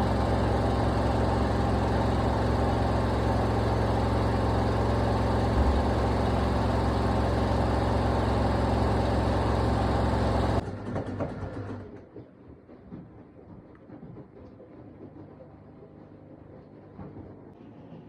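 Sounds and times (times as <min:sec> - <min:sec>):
drum coasting down rumble: 0:00.0 - 0:10.6
washing machine spinning: 0:00.0 - 0:10.6.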